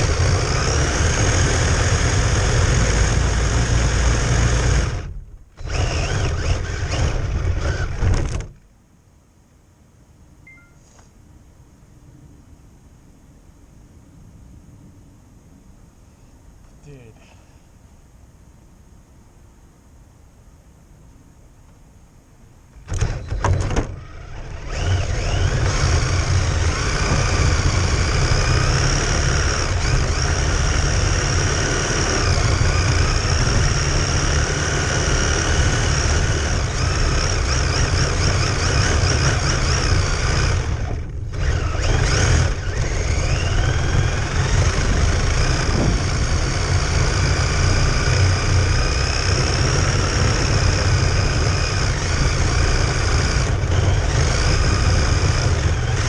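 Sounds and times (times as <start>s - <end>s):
rc car motor whining: 0.0s - 8.6s, 22.8s - 56.0s.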